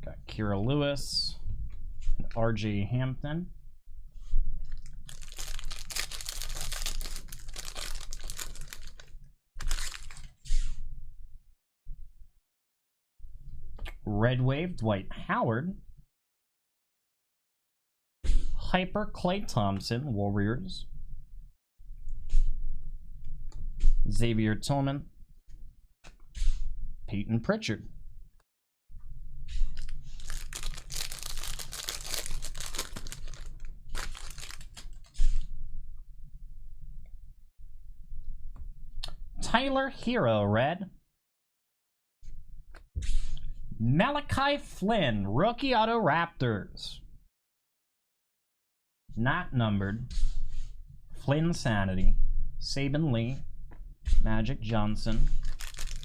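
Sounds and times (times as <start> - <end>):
foil wrapper crinkling and tearing: 4.7 - 10.3, 29.8 - 35.2, 55.4 - 56.0
trading cards flipping and rustling: 4.7 - 10.7, 29.6 - 35.4, 55.3 - 56.0.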